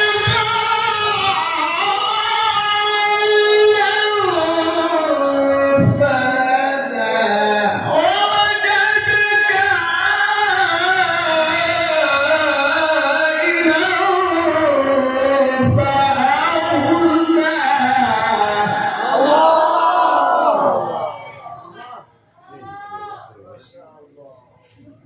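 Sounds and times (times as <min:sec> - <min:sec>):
man reciting melodically: 0:00.0 - 0:19.6.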